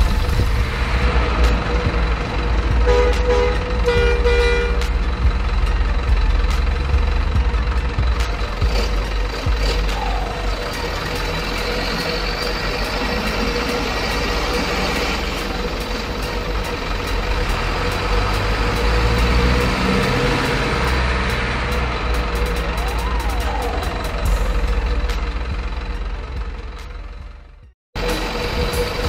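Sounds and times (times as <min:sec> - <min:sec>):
truck engine rumbling: 0:00.0 - 0:29.0.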